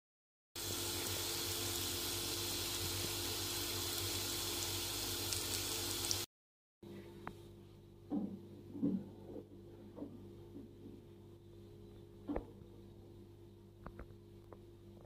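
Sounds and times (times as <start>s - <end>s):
water running from a tap: 0.6s - 6.3s.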